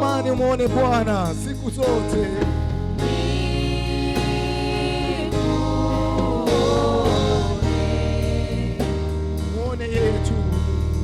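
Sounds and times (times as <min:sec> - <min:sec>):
band playing: 0:00.0 - 0:11.0
keyboard chords: 0:00.0 - 0:11.0
singers holding long notes: 0:03.0 - 0:09.2.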